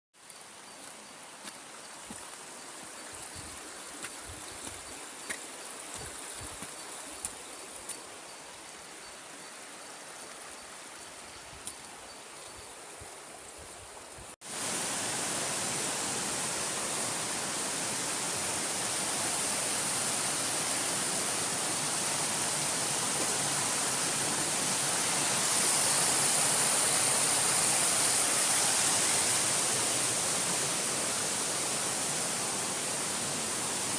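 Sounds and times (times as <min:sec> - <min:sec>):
waterfall rushing: 0:14.4 - 0:33.9.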